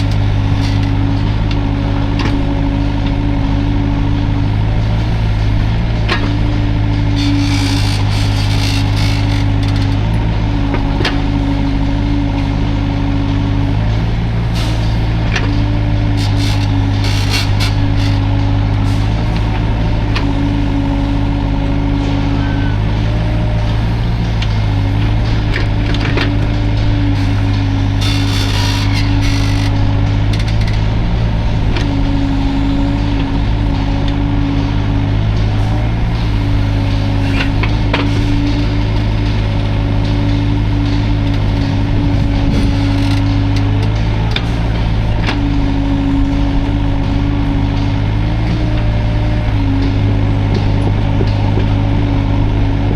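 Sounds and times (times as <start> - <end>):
diesel engine running: 0.0 - 52.9
held whine: 0.0 - 52.9
hydraulic hum: 0.0 - 52.9.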